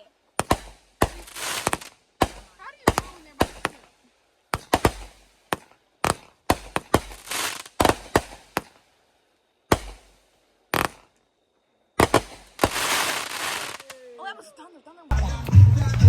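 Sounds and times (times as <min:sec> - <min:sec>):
fireworks bangs: 0:00.0 - 0:09.0, 0:09.7 - 0:11.2, 0:12.0 - 0:14.1
fireworks crackle: 0:00.0 - 0:11.3, 0:12.0 - 0:14.2.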